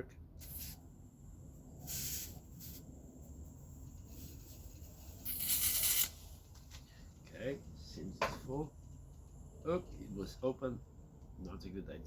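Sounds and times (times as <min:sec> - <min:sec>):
gas hissing in spurts: 0:00.4 - 0:07.2.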